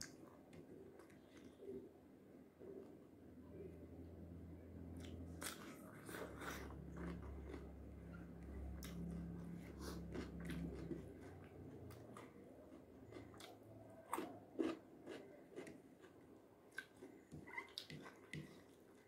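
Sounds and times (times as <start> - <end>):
cucumber crunching being chewed: 5.0 - 18.6.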